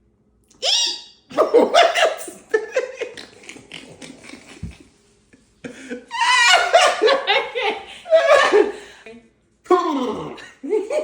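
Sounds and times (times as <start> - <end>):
loud laughter: 5.7 - 8.8.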